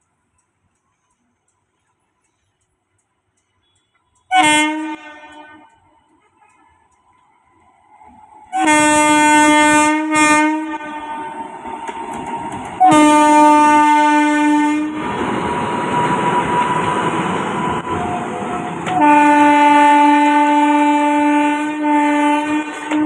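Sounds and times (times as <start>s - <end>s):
train rumbling on rails: 0.0s - 23.0s
train horn blasts: 3.6s - 5.9s, 8.5s - 11.6s, 12.8s - 15.2s, 16.0s - 23.0s.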